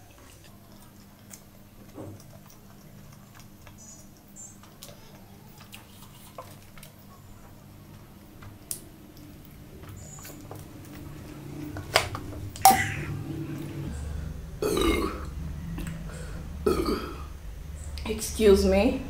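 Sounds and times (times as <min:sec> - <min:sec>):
steady low hum: 0:00.0 - 0:19.0
chewing with wet mouth clicks: 0:00.1 - 0:07.5.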